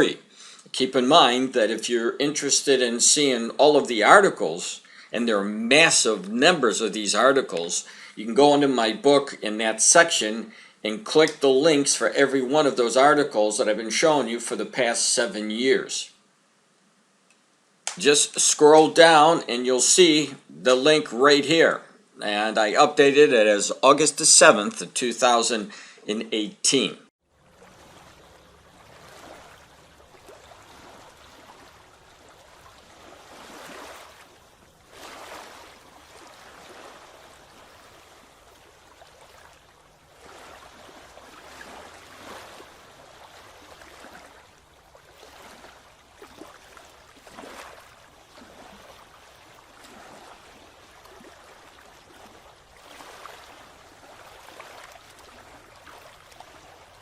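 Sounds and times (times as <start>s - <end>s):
water rushing and lapping: 27.2s - 57.0s.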